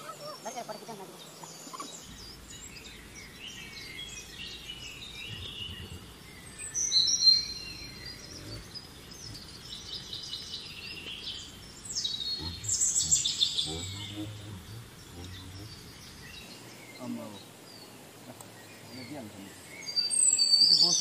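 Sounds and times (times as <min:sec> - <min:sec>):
birds chirping and calling: 0:00.0 - 0:21.0
high whistled bird calls: 0:00.0 - 0:21.0.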